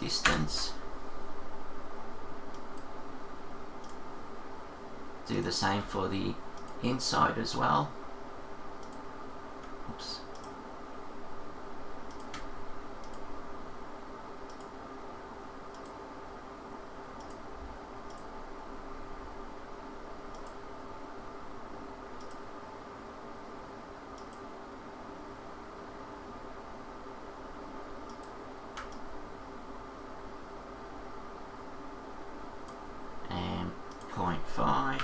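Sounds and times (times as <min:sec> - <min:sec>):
steady low hum: 0:00.0 - 0:35.0
computer mouse clicks: 0:02.5 - 0:02.9, 0:03.8 - 0:04.0, 0:06.5 - 0:06.8, 0:08.8 - 0:11.2, 0:12.0 - 0:13.3, 0:14.4 - 0:14.8, 0:15.7 - 0:16.0, 0:17.2 - 0:18.3, 0:20.3 - 0:20.6, 0:22.2 - 0:22.5, 0:24.1 - 0:24.5, 0:28.0 - 0:29.1, 0:32.6 - 0:32.8, 0:33.9 - 0:34.1.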